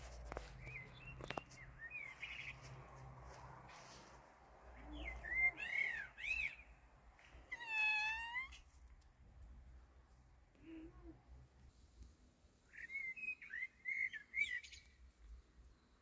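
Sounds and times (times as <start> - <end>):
small birds chirping: 0.2 - 4.1, 4.7 - 8.7, 12.6 - 16.0.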